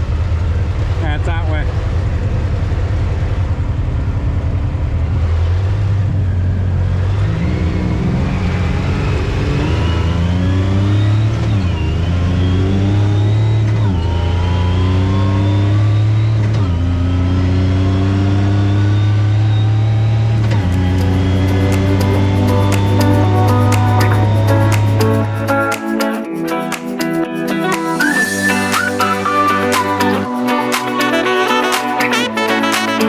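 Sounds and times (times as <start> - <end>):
off-road vehicle engine revving: 5.2 - 21.7.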